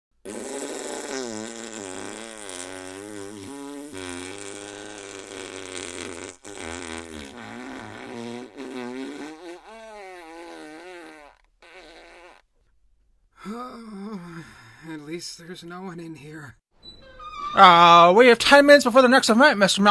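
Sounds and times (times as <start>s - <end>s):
fart sound effect: 0.2s - 12.4s.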